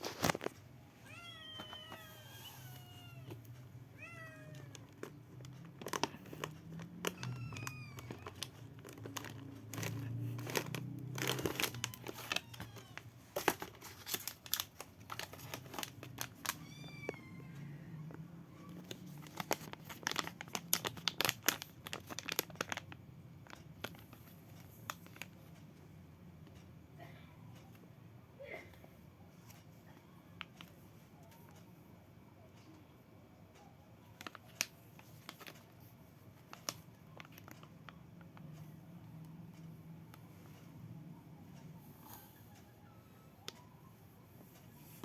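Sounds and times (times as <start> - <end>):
cat meowing: 1.0 - 3.4, 4.0 - 4.9, 7.1 - 8.4, 11.5 - 13.1, 16.5 - 18.1
plastic packaging crinkling: 4.4 - 17.2, 18.7 - 25.3, 34.2 - 35.8.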